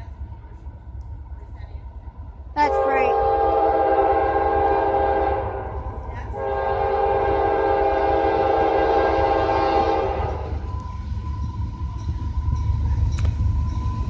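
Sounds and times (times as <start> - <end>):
train rumbling past: 0.0 - 14.0
locomotive air horn blasts: 2.6 - 10.6.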